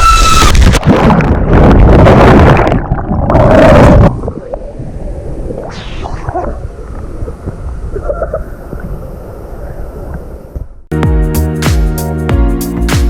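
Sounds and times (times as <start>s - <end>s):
water splashing and gurgling: 0.5s - 9.5s.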